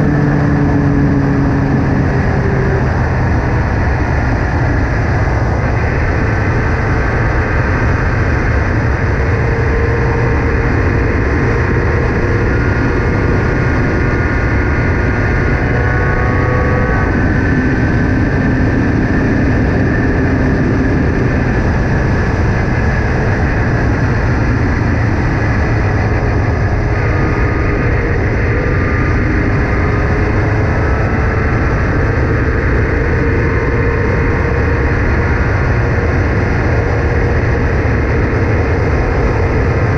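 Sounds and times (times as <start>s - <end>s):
racing car engine: 0.0s - 39.9s.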